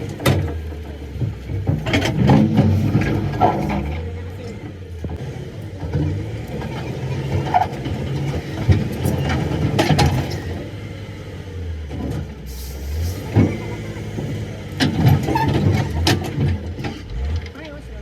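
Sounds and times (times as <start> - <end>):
metallic knocks and clanks: 0.0 - 4.1
engine low rumble: 0.0 - 18.0.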